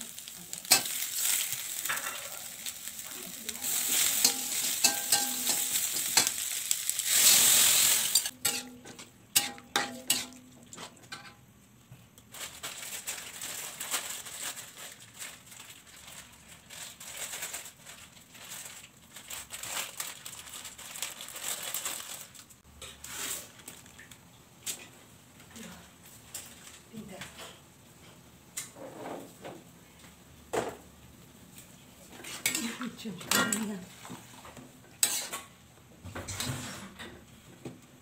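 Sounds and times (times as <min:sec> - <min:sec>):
soft uneven crackle: 0:00.0 - 0:07.2, 0:12.2 - 0:22.6, 0:23.5 - 0:24.4
vegetables sizzling in wok: 0:00.0 - 0:10.9, 0:32.0 - 0:35.6
metal spatula scraping pan: 0:03.6 - 0:06.4, 0:07.0 - 0:11.4, 0:35.0 - 0:35.5.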